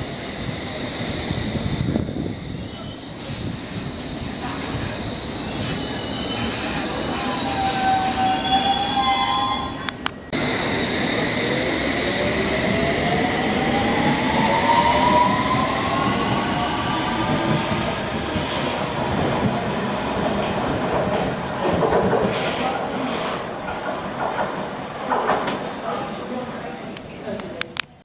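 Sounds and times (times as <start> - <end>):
train wheel squeal: 2.1 - 10.1
train whine rising in pitch: 7.6 - 18.8.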